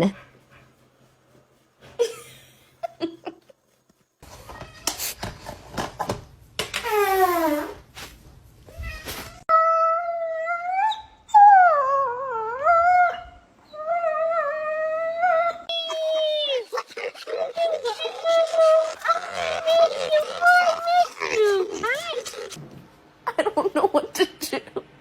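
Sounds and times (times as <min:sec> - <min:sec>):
short scuffling noises: 0:07.9 - 0:09.4.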